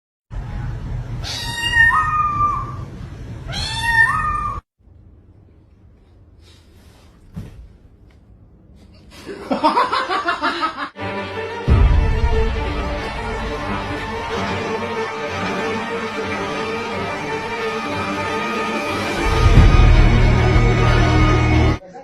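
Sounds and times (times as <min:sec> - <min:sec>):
cat meowing: 0:01.2 - 0:02.9, 0:03.5 - 0:04.6.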